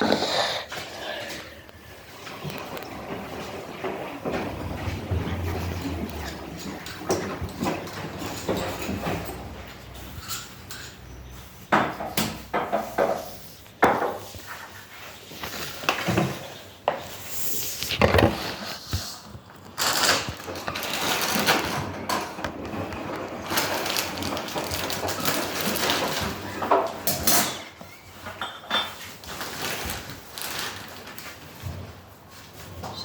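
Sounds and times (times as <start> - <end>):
washing machine running: 1.8 - 11.4, 19.7 - 28.1
machine knocking and rattling: 2.2 - 10.8.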